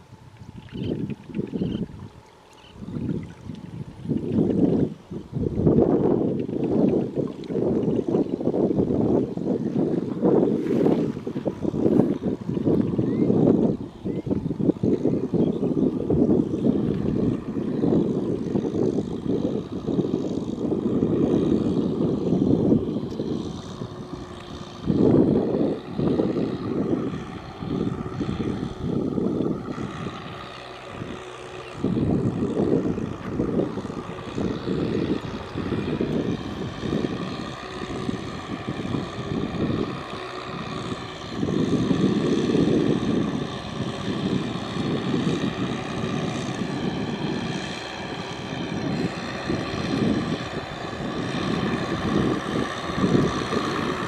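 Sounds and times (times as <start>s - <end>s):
tractor engine running under load: 14.4s - 54.0s.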